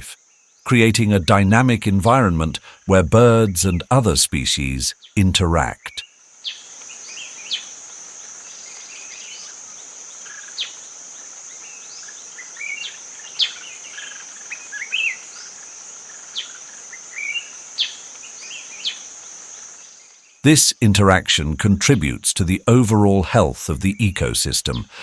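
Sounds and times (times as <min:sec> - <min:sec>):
insect drone: 0:00.1 - 0:00.6, 0:06.0 - 0:20.4.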